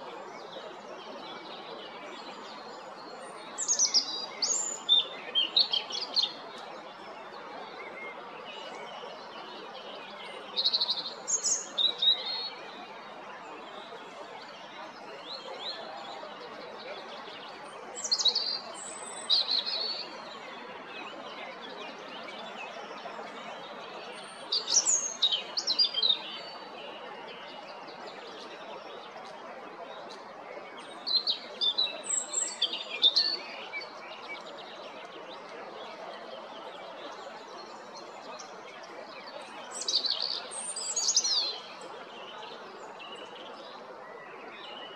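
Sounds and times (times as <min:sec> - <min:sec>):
robin twittering song: 0:02.9 - 0:06.4, 0:10.6 - 0:12.6, 0:18.0 - 0:20.0, 0:24.2 - 0:26.9, 0:30.8 - 0:34.7, 0:39.6 - 0:43.2.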